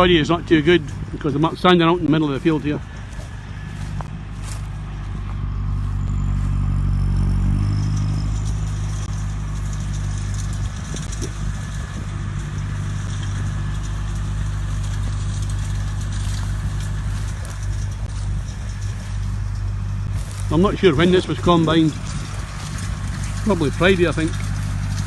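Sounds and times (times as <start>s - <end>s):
wind on microphone: 0.0s - 6.4s
tractor engine under load: 0.0s - 25.0s.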